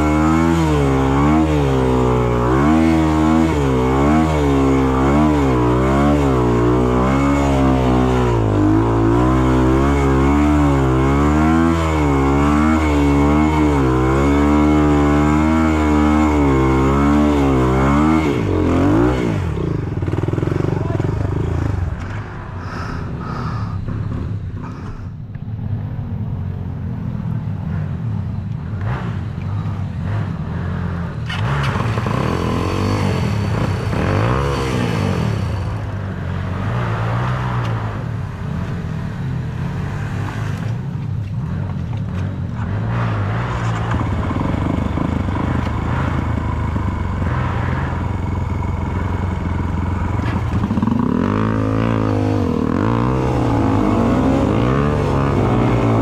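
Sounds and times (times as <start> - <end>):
dirt bike engine revving: 0.0 - 26.1, 27.2 - 40.8, 41.4 - 56.0.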